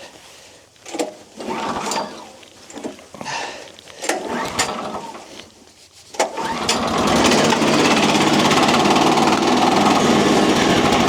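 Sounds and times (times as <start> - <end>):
small gasoline engine running: 4.1 - 5.3, 6.3 - 11.0.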